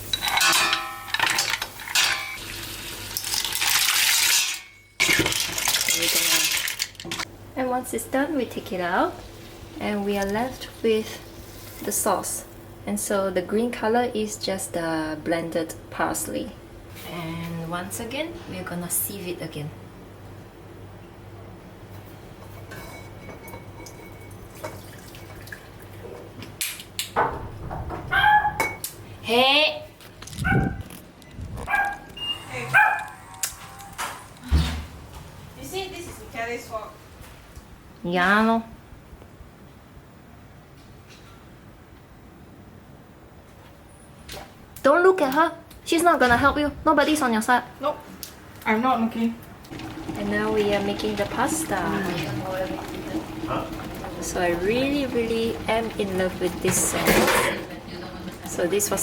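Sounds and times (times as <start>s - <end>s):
water hissing in a pot: 49.7s - 56.9s.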